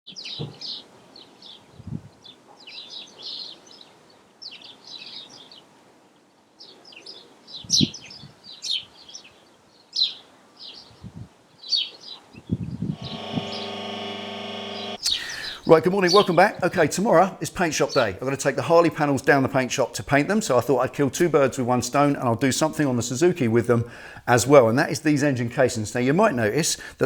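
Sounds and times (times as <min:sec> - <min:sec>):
birds chirping and singing: 0:15.0 - 0:16.4.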